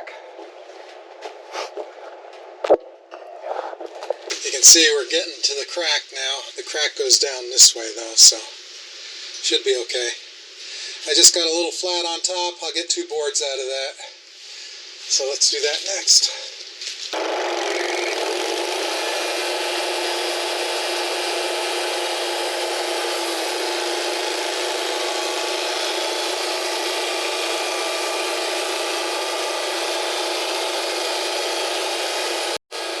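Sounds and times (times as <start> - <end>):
band saw cutting log: 17.2 - 33.0.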